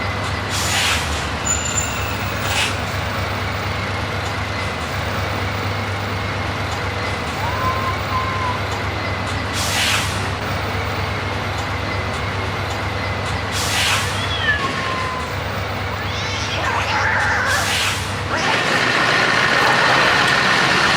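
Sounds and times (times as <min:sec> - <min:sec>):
truck engine rumble: 0:00.0 - 0:20.9
faint squealing tones: 0:07.3 - 0:08.7, 0:14.1 - 0:17.6
air brake hiss: 0:09.6 - 0:10.2, 0:13.6 - 0:14.2, 0:17.6 - 0:18.2.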